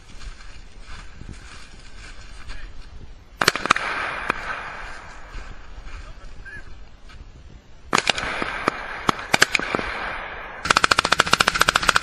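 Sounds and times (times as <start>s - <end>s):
sharp bangs: 3.4s - 5.4s, 7.9s - 12.0s.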